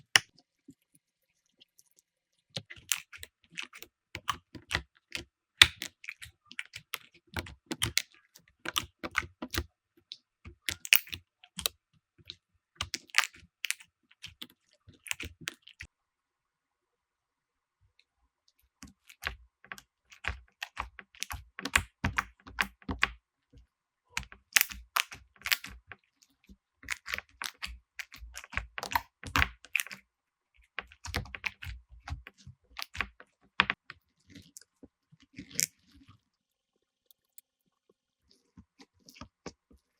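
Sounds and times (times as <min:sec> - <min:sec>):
slime crackling and popping: 0:10.6 - 0:11.7, 0:24.2 - 0:25.9, 0:26.8 - 0:30.0, 0:30.7 - 0:33.8.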